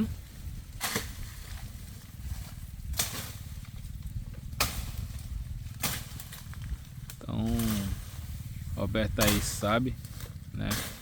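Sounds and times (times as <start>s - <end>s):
billhook chopping dry wood: 0.8s - 1.2s, 9.2s - 11.0s.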